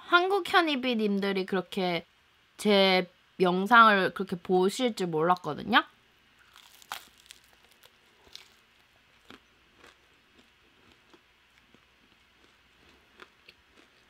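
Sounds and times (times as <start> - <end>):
crisp chewing crunches: 6.4 - 14.0.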